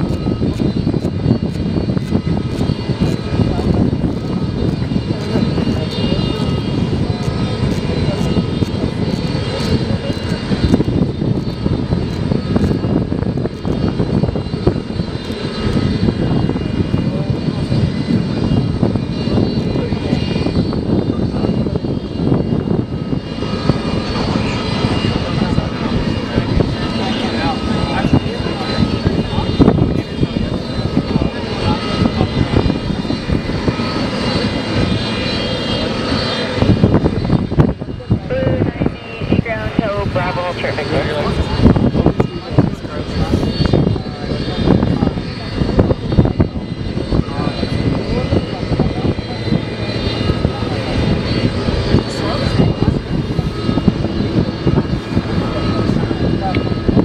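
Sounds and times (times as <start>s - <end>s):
jet engines rumbling and whining: 0.0s - 57.0s.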